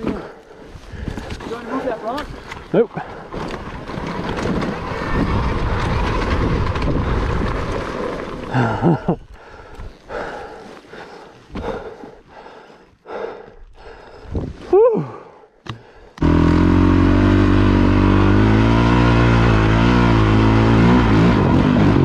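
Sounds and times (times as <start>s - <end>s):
motorcycle engine under load: 16.2s - 22.0s.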